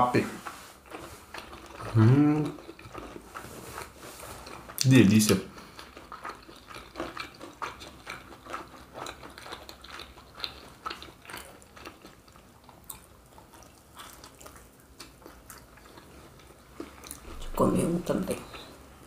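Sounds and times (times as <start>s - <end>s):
person chewing food: 0.4s - 17.6s.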